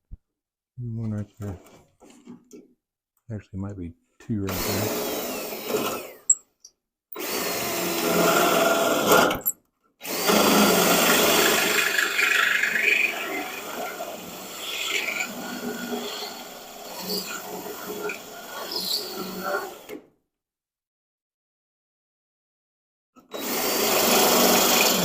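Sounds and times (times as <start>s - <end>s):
power drill boring through sheet metal: 4.5s - 6.4s, 7.2s - 20.0s, 23.2s - 25.0s.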